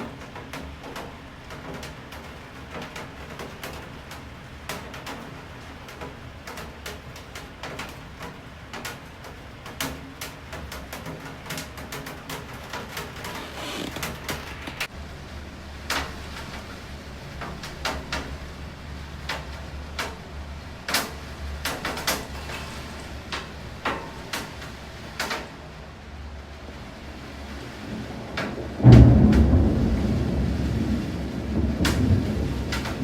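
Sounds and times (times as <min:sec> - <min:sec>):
large raindrops tapping hard surface: 0:00.0 - 0:33.0
low steady rumble: 0:13.4 - 0:21.8
loud thunder clap: 0:27.5 - 0:33.0.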